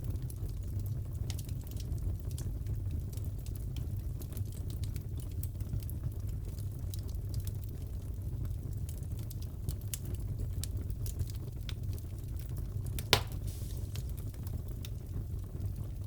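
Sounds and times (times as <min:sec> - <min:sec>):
wood fire crackling: 0:00.1 - 0:16.0
fire pop: 0:13.0 - 0:14.9.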